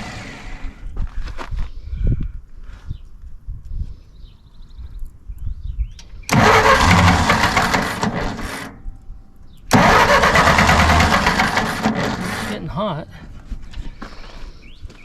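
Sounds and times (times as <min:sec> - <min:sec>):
tractor starter cranking engine: 0:06.3 - 0:09.0, 0:09.7 - 0:12.8.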